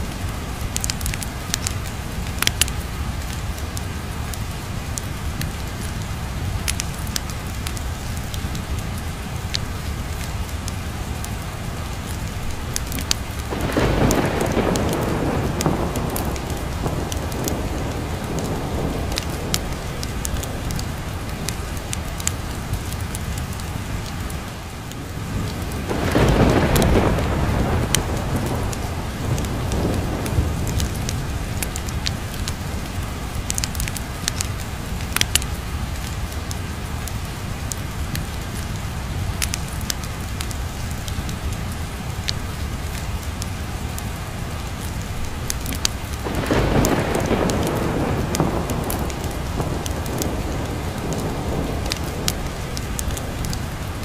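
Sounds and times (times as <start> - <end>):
steady rain: 0.0 - 54.0
wood fire crackling: 0.0 - 54.0
thunder rolling: 13.0 - 22.6, 25.1 - 34.4, 46.2 - 54.0.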